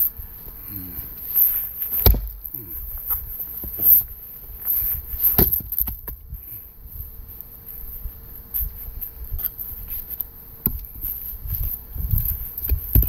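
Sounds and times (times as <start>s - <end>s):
axe chopping log: 2.0s - 2.5s, 5.3s - 6.0s.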